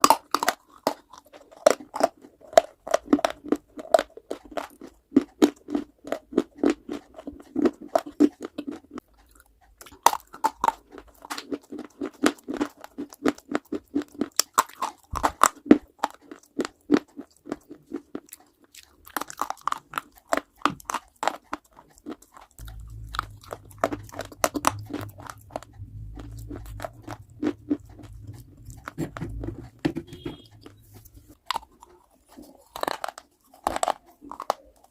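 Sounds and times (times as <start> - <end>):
crunchy chewing of hard clay: 0.0 - 34.9.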